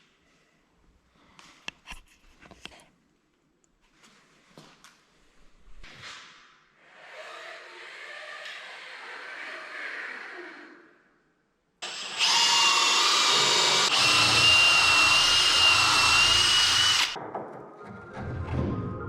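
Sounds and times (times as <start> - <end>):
power tool whining: 11.8 - 17.2.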